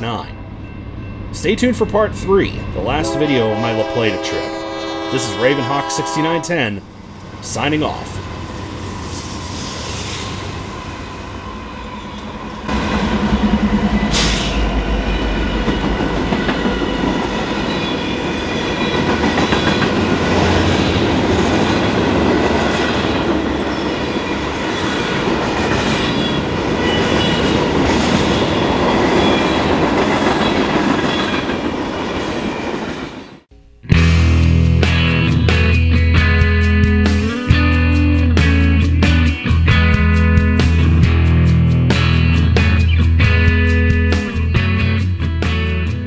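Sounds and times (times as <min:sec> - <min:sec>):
diesel locomotive rumble: 0:00.0 - 0:17.8
wheels rattling on rail: 0:06.9 - 0:33.2.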